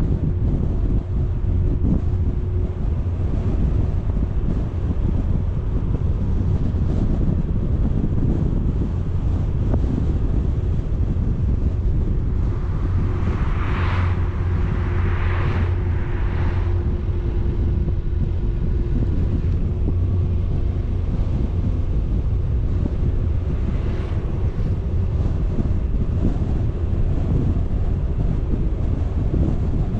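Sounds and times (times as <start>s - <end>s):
vehicle road and engine rumble: 0.0s - 29.9s
wind buffeting microphone: 0.0s - 29.9s
brief rushing swells: 12.4s - 18.0s.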